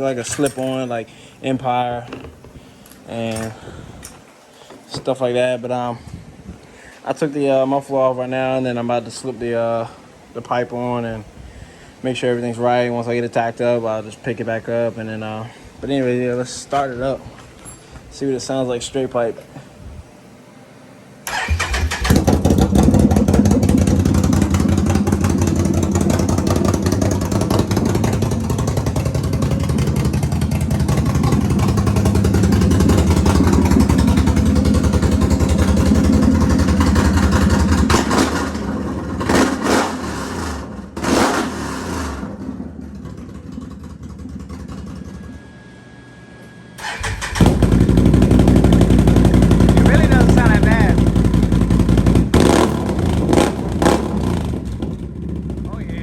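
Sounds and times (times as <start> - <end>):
loud engine starting and running: 21.2 - 45.6, 46.8 - 56.0.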